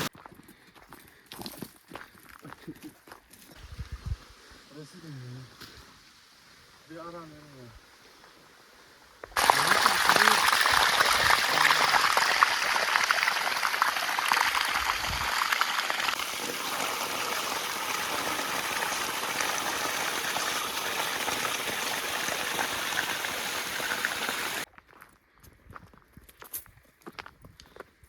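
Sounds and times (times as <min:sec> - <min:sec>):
river water rushing: 0:09.4 - 0:24.6.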